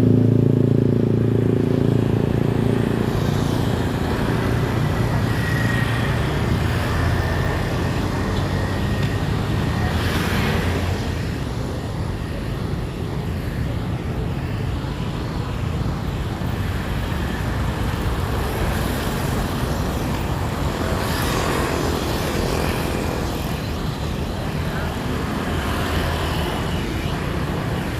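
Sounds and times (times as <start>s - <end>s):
low rumble of traffic: 0.0s - 27.9s
vehicles passing: 0.0s - 27.9s.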